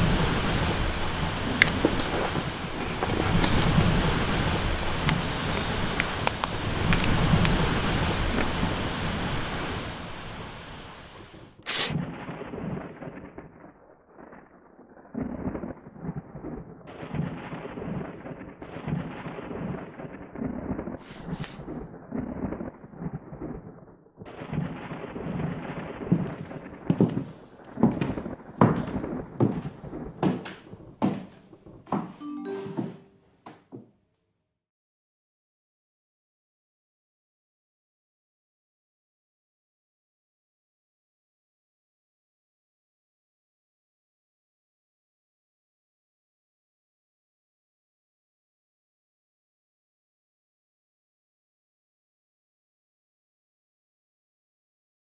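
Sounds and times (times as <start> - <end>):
paper tearing: 11.7 - 12.0.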